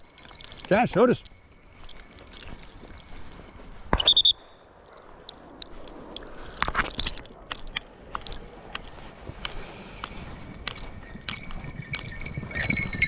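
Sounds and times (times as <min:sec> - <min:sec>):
trilled dog whistle blast: 0:04.0 - 0:04.6.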